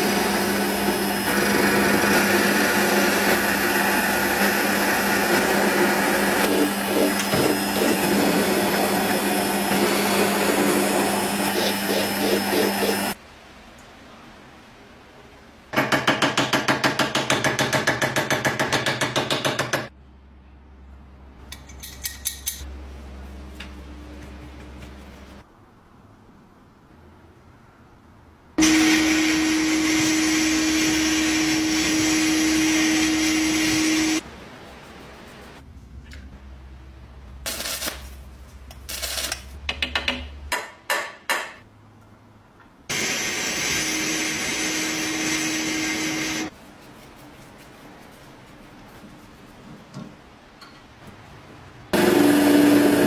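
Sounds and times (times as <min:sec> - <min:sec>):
metal lock parts scraping: 0:21.5 - 0:22.7.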